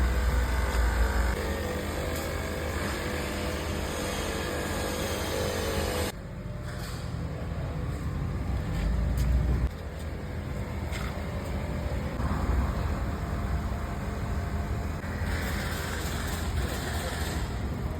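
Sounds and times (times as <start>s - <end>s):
motor vehicle rumble: 7.1s - 15.0s.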